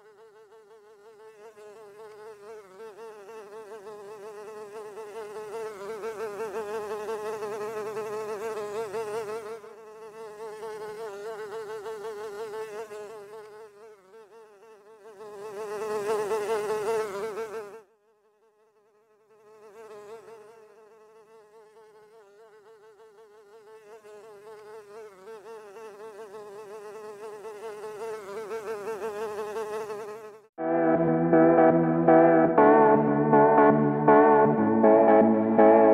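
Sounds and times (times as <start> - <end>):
fly buzzing: 0.0 - 30.5.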